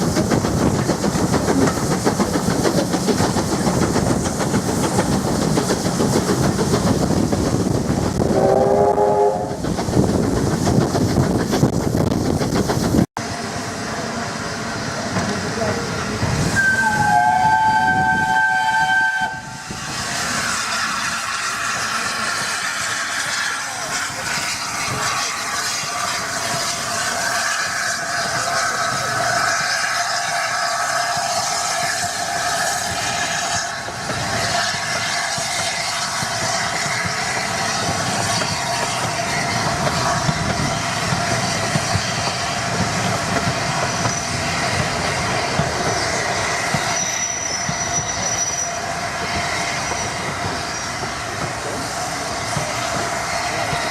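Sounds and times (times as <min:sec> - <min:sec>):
train wheels clattering: 0:00.0 - 0:08.6, 0:09.5 - 0:13.1, 0:19.9 - 0:53.9
train whistle chord: 0:08.4 - 0:09.6, 0:16.6 - 0:19.6.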